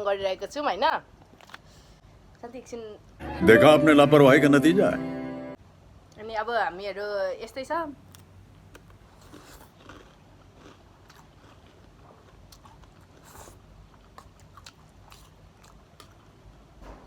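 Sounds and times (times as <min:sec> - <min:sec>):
person chewing snacks: 0:08.1 - 0:16.4.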